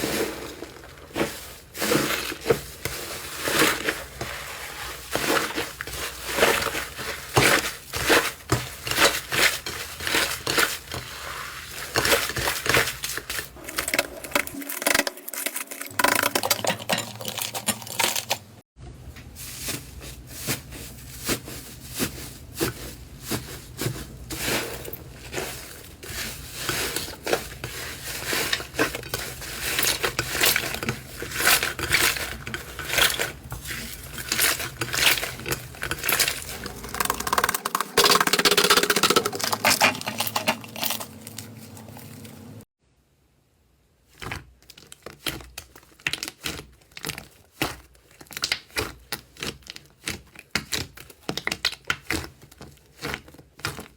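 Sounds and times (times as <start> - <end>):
slime crackling and popping: 44.8 - 53.8.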